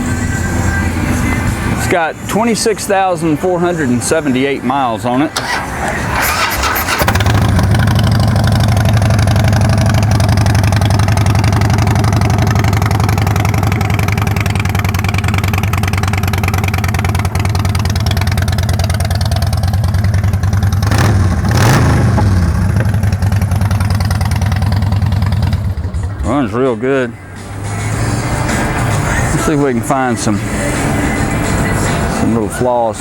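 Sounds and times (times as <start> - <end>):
motorcycle engine idling: 5.4 - 27.4
motorcycle throttle blip: 20.6 - 24.4.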